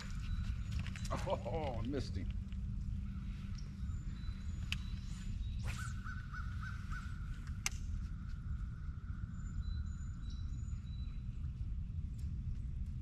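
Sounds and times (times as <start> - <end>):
steady low rumble: 0.0 - 13.0
bird calling: 3.2 - 11.0.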